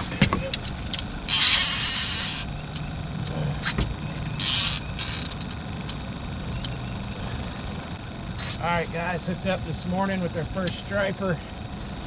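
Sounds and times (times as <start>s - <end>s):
fishing reel clicking and creaking: 0.5s - 2.9s, 4.3s - 6.0s.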